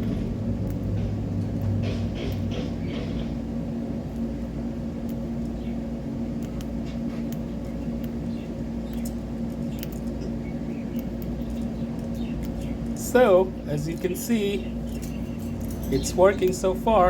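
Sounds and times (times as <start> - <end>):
low electrical hum: 0.0 - 17.0
bird cracking seeds: 6.4 - 13.0.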